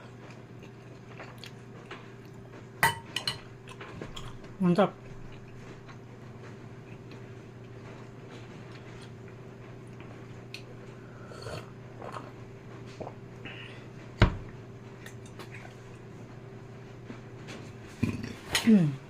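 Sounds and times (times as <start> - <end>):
chewing noodles: 0.0 - 2.4
steady low hum: 0.0 - 19.0.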